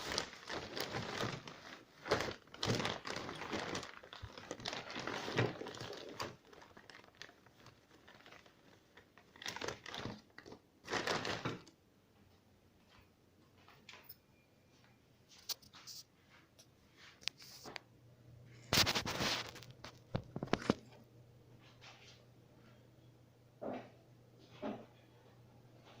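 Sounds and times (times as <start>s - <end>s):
rustling and scraping handling noise: 0.0s - 11.7s, 15.2s - 17.9s, 18.5s - 21.0s, 21.6s - 22.8s.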